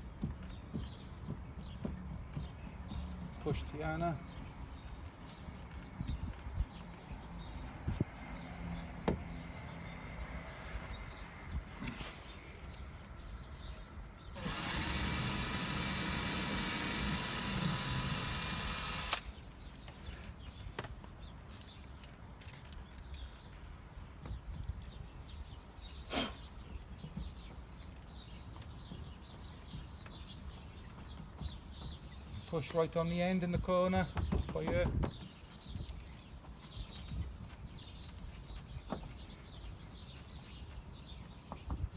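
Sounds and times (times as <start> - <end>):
power drill driving screw: 14.3 - 19.3
light knocks and taps: 34.0 - 35.3.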